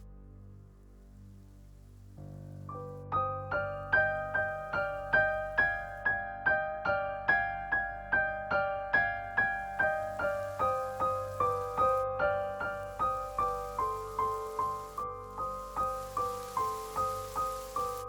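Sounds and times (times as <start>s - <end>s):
soft low drone: 0.0s - 6.1s
piano repeated notes: 2.2s - 18.0s.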